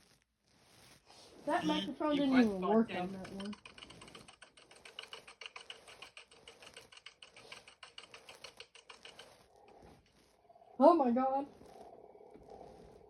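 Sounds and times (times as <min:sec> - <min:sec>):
plastic toy keys clicking: 0:02.9 - 0:09.3.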